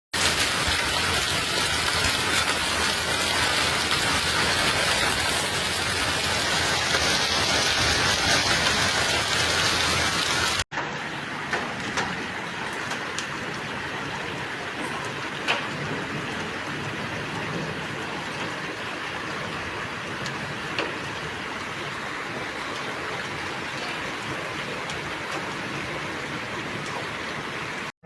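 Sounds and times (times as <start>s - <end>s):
heavy rain pouring: 0.2s - 27.9s
sharp taps of rain: 0.2s - 27.9s.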